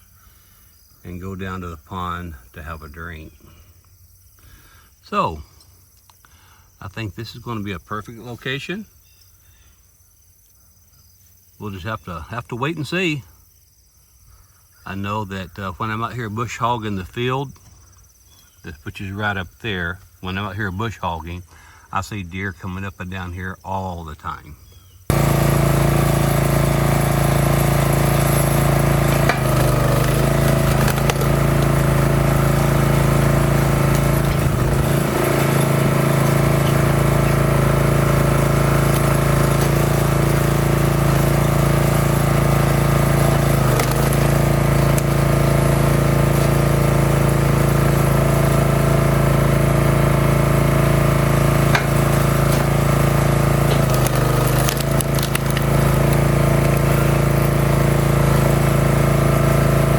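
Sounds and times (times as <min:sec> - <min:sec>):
wood splitter engine running: 0:25.1 - 0:59.9.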